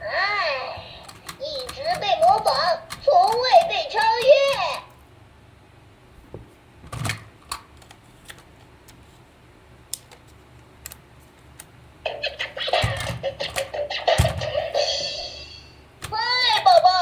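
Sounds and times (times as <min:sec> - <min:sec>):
plastic toy clicking: 0:01.1 - 0:05.0, 0:16.0 - 0:17.0.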